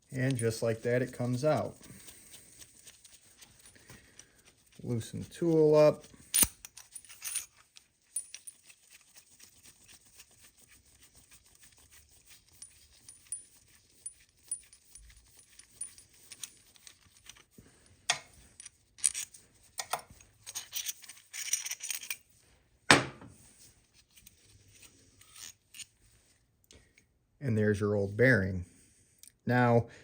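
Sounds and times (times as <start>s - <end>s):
metal clinks: 6.3s - 8.7s.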